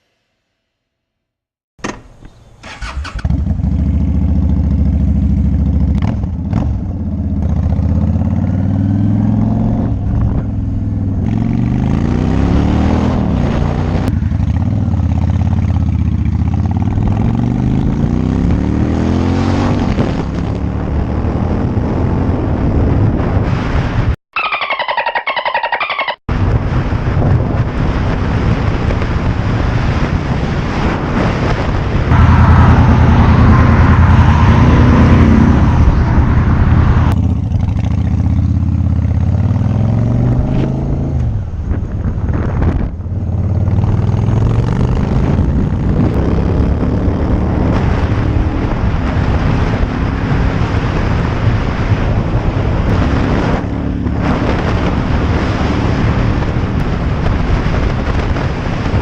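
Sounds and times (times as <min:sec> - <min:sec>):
motorcycle engine accelerating: 0:01.8 - 0:59.0
wind noise on microphone: 0:16.8 - 0:24.2, 0:26.2 - 0:38.9, 0:39.6 - 0:59.0.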